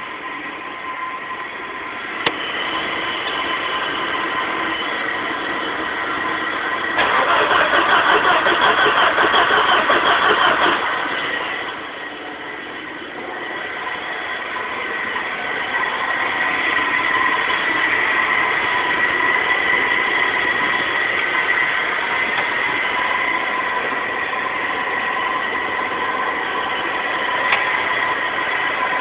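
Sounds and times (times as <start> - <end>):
high-pitched whine: 0.0 - 29.0
starter cranking engine: 6.9 - 11.8.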